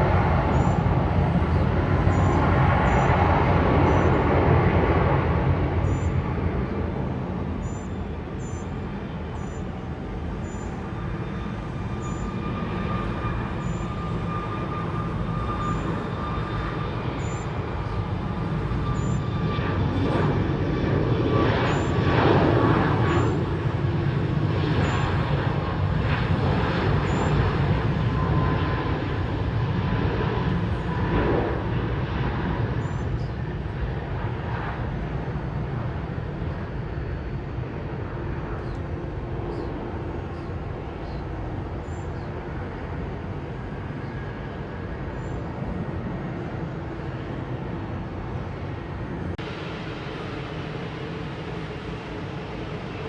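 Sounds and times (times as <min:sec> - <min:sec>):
jet airliner passing: 0:00.0 - 0:53.0.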